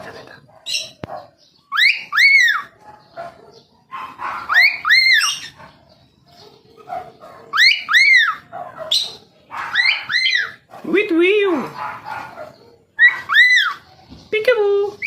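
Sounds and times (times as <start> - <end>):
soft bird chatter: 0.0 - 15.0.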